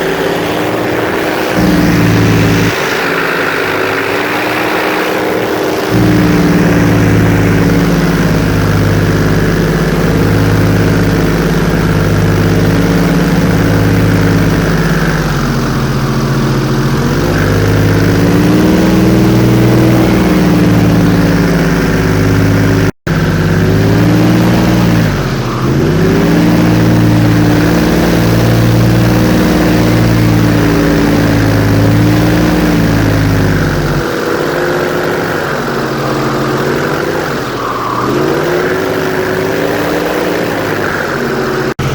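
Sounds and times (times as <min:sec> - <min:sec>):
airboat engine and propeller: 0:00.0 - 0:41.9.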